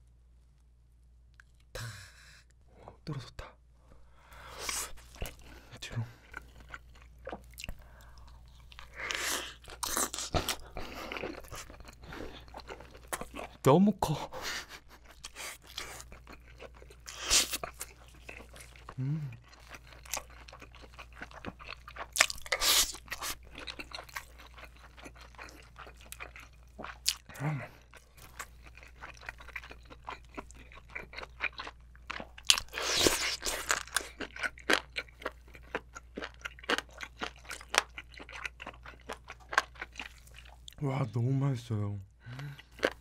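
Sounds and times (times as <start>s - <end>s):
wet crunchy chewing: 4.5s - 13.6s, 14.6s - 40.8s.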